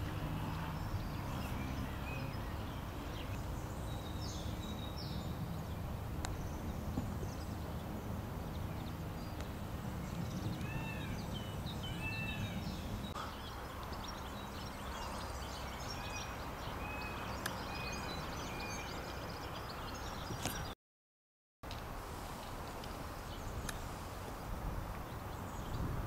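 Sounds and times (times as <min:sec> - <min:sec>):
birds chirping: 0:00.0 - 0:20.8.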